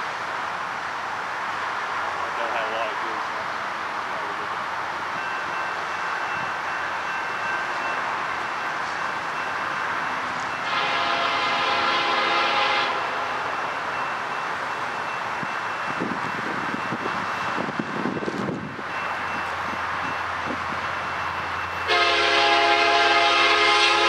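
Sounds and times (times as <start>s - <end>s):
train rolling past: 0.0s - 24.0s
locomotive horn blast: 10.6s - 13.5s, 21.9s - 24.0s.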